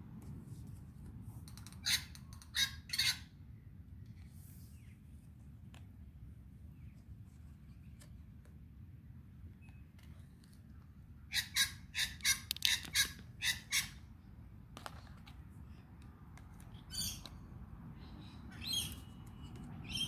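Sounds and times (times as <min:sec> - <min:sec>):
low steady background hum: 0:00.0 - 0:20.0
bird squawking harshly: 0:11.3 - 0:14.0.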